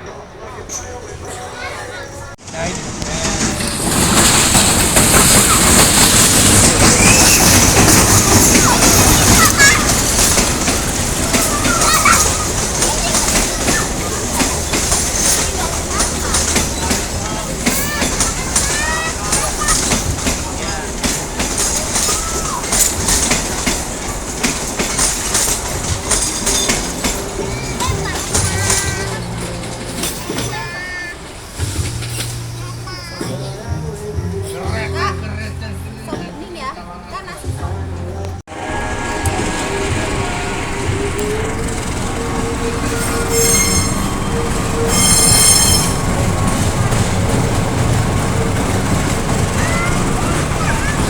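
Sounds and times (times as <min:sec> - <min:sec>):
train rumble: 0:00.0 - 0:51.0
train wheels clacking: 0:02.4 - 0:34.2, 0:38.5 - 0:51.0
high-pitched wheel squeal: 0:05.1 - 0:10.3, 0:38.6 - 0:47.4.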